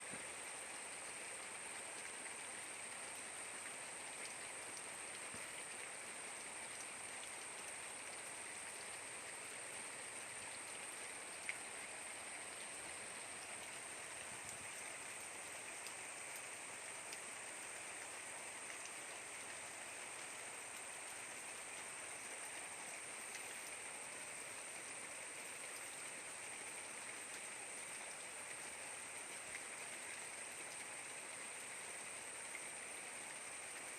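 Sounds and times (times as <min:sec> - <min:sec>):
steady rain falling: 0:00.0 - 0:33.9
raindrops ticking: 0:01.8 - 0:23.8.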